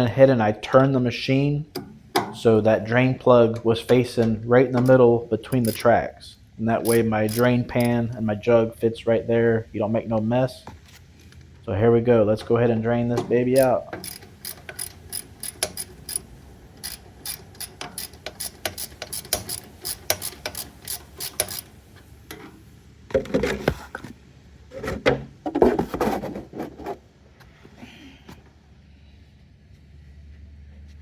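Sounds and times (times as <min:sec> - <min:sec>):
ratchet wrench clicking: 0:04.8 - 0:05.9, 0:06.8 - 0:08.2, 0:13.5 - 0:21.8.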